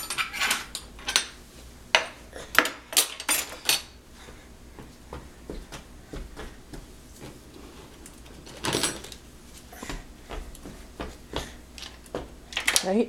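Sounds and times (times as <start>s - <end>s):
dishes and cutlery clinking: 0.0s - 1.4s, 2.0s - 4.0s.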